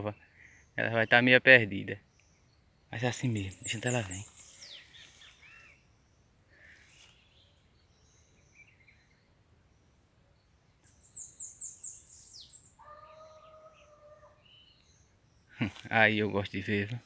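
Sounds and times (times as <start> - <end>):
held lower bird tone: 0.0 - 16.9
birds chirping: 0.0 - 17.0.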